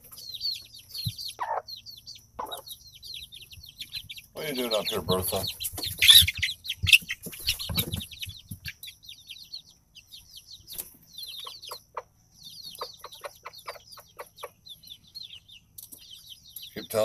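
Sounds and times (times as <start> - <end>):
chicks peeping: 0.0 - 17.0
hen clucking: 0.0 - 17.0.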